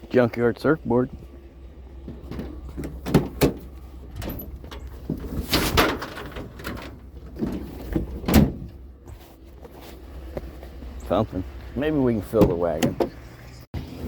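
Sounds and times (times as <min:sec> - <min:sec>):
low steady rumble: 0:00.0 - 0:14.0
knocks and clatter: 0:02.0 - 0:08.8.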